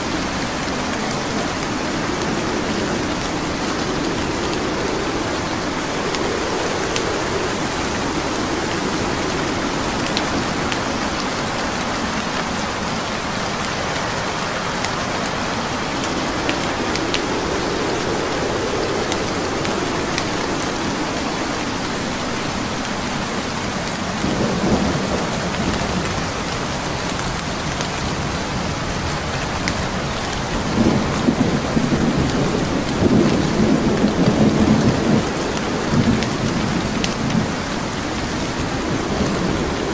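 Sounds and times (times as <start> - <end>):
wood fire crackling: 0.0 - 24.6
heavy rain: 0.0 - 39.9
low rolling thunder: 0.0 - 39.9.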